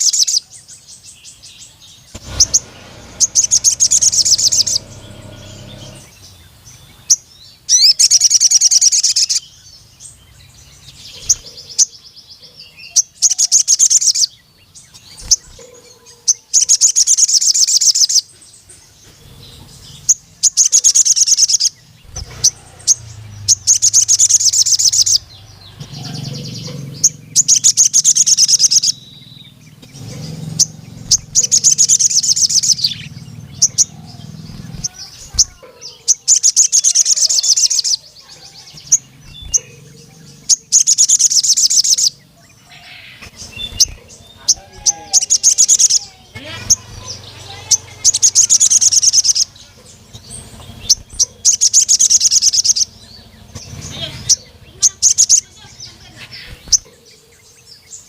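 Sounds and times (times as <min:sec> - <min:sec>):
bird singing fast high trills: 0:00.0 - 0:12.0, 0:12.7 - 0:15.6, 0:16.4 - 0:18.3, 0:19.1 - 0:56.9
sharp bird chip notes: 0:02.0 - 0:09.4, 0:19.4 - 0:38.0, 0:38.7 - 0:55.5
low hum: 0:02.1 - 0:06.5.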